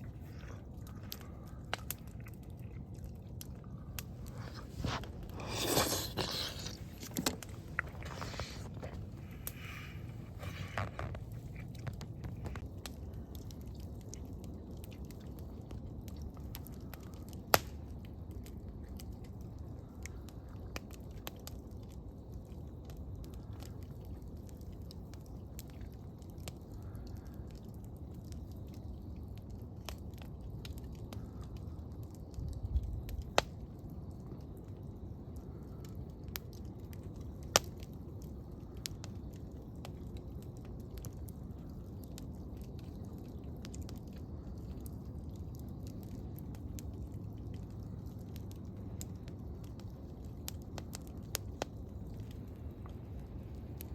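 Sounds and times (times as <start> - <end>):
campfire burning: 0.0 - 53.9
wood crackling pops: 3.4 - 14.4, 16.4 - 17.8, 35.4 - 53.9.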